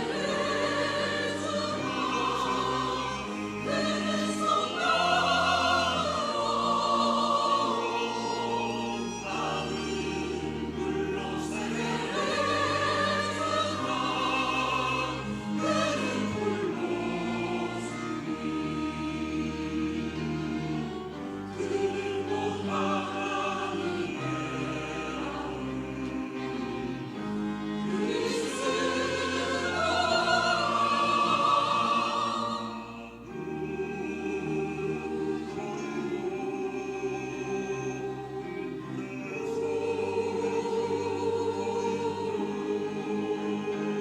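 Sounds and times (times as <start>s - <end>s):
church choir singing: 0.0s - 44.0s.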